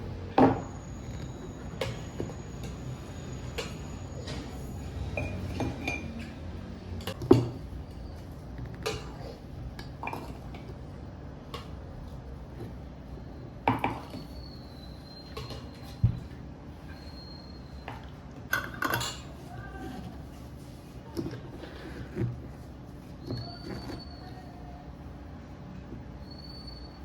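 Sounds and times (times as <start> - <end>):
dishes and cutlery clattering: 1.7 - 7.7, 18.5 - 19.4.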